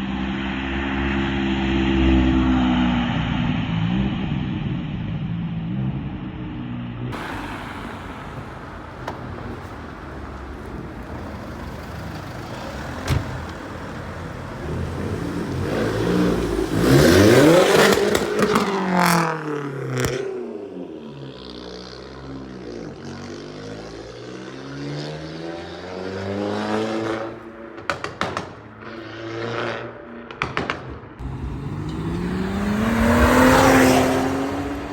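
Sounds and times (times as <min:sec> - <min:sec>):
car engine accelerating past: 0:07.2 - 0:20.1, 0:31.2 - 0:34.9
lower engine note: 0:31.2 - 0:34.9.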